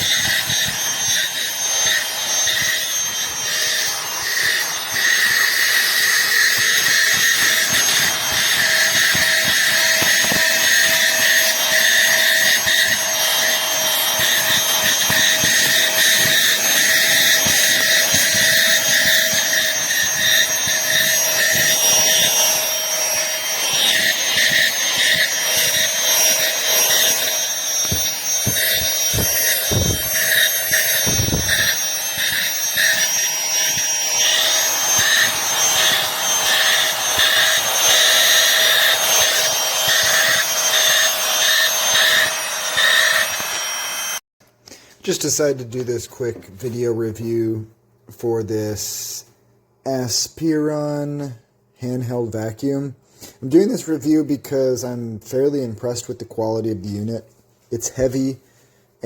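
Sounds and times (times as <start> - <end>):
handheld vacuum cleaner running: 0.0 - 44.2.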